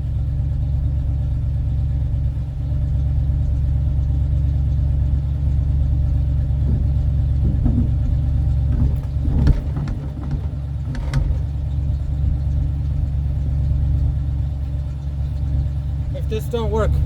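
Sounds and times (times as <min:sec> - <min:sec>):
truck engine idling: 0:00.0 - 0:17.0
short knocks: 0:05.7 - 0:14.1.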